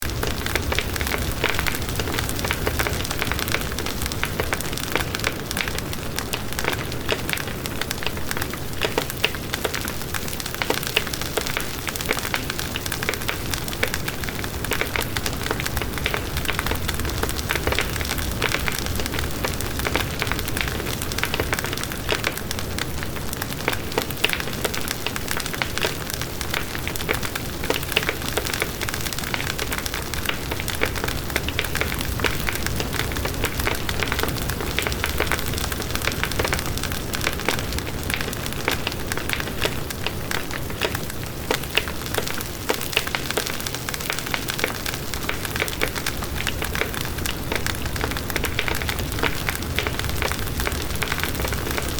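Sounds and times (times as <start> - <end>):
burning wood popping: 0.0 - 51.9
campfire crackling: 0.0 - 51.9.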